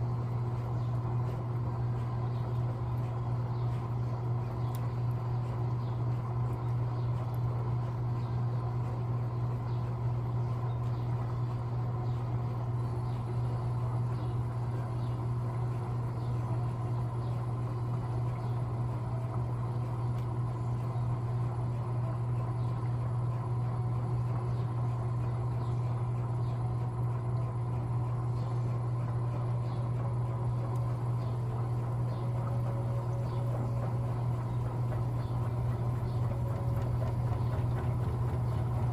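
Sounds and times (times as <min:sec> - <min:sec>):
washing machine humming: 0:00.0 - 0:38.9.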